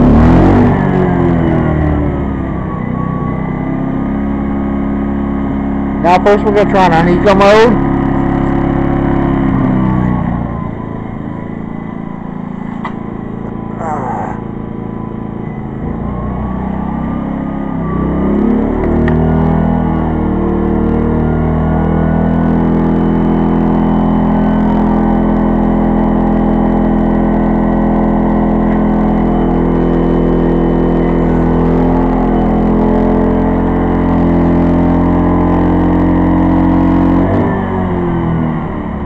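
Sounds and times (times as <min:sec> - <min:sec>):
generator engine running: 0:00.0 - 0:39.0.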